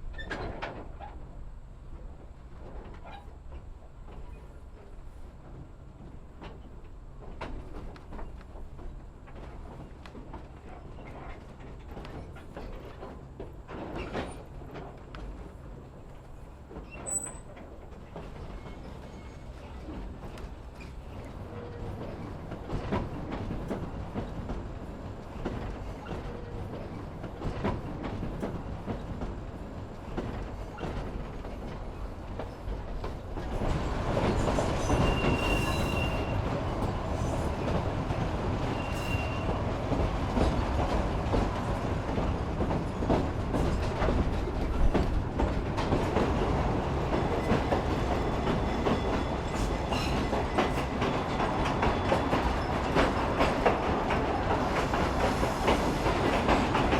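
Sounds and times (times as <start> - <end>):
train wheels rumbling over rails: 0.0 - 56.9
high wheel squeal: 34.8 - 36.4, 38.6 - 39.6.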